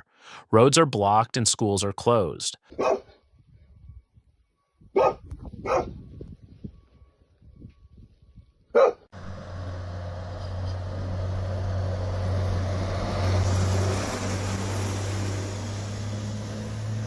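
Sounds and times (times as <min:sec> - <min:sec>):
vehicle engine drone: 0:09.1 - 0:17.0.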